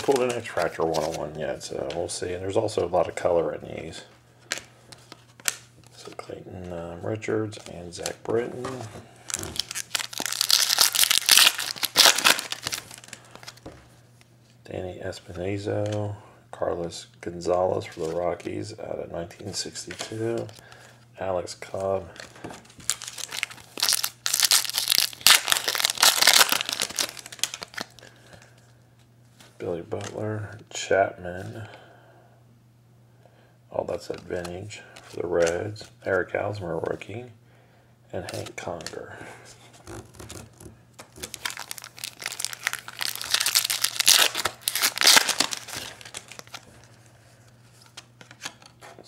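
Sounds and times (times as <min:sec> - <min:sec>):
foil wrapper tearing and crinkling: 0:09.3 - 0:13.6, 0:22.8 - 0:28.0, 0:39.8 - 0:46.6.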